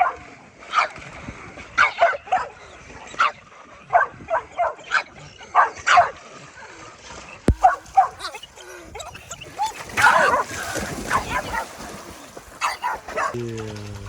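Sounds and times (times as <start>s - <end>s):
dog barking excitedly: 0.0s - 1.0s, 1.8s - 2.6s, 3.2s - 6.2s, 7.5s - 8.4s, 9.6s - 11.8s, 12.6s - 13.4s
sharp knock: 7.5s - 7.7s.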